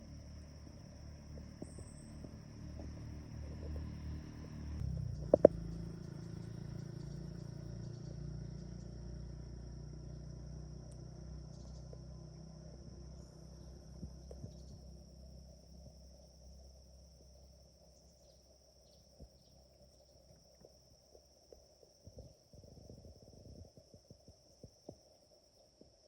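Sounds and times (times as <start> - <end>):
insects trilling: 0.0 - 26.0
faint ticks: 4.8 - 6.2, 10.9 - 12.1, 13.9 - 15.1, 18.0 - 26.0.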